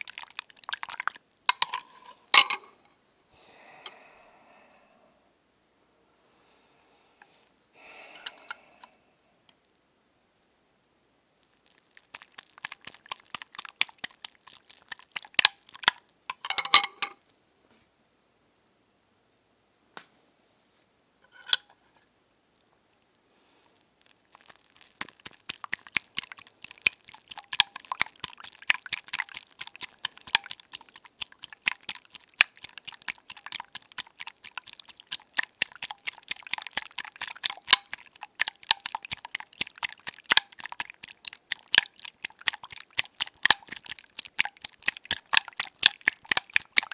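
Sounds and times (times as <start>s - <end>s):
crackling and scratching: 11.3s - 17.2s, 23.6s - 46.9s.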